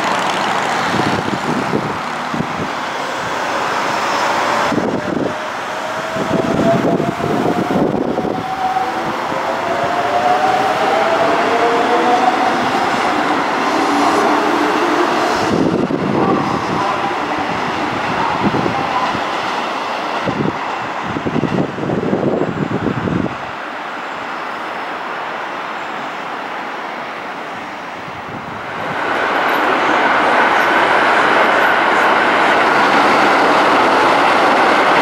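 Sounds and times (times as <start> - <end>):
wheel-on-rail noise: 0.0 - 19.1.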